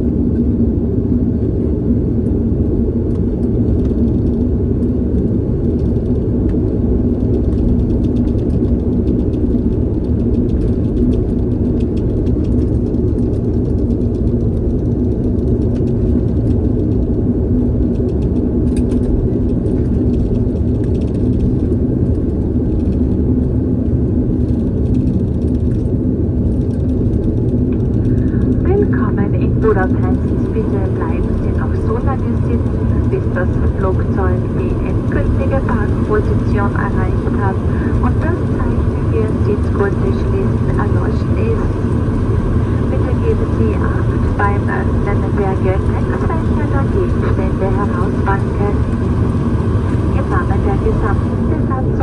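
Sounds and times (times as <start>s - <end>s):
airliner engines rumbling: 0.0s - 52.0s
low steady hum: 26.5s - 52.0s.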